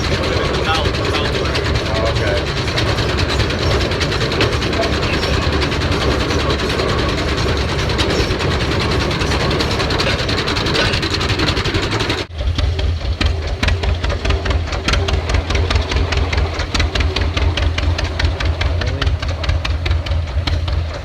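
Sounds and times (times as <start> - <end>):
deep engine rumble: 0.0 - 21.0
old machinery clattering: 0.0 - 21.0.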